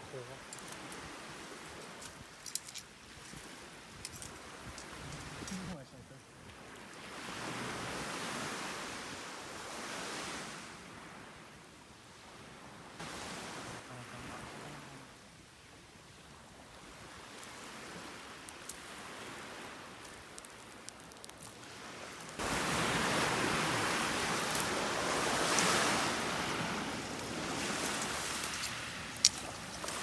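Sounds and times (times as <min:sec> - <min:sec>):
sea waves washing onto shore: 0:12.3 - 0:30.0.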